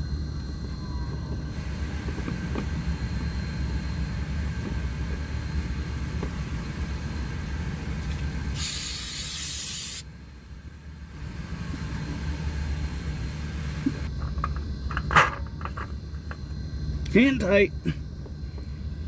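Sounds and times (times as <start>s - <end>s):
low steady rumble: 0.0s - 9.4s, 10.0s - 19.0s
loud spraying hiss: 8.5s - 10.0s.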